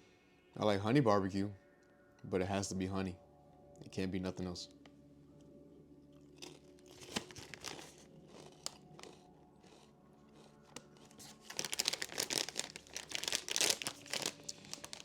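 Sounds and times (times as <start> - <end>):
chip bag crinkling: 6.4 - 15.0.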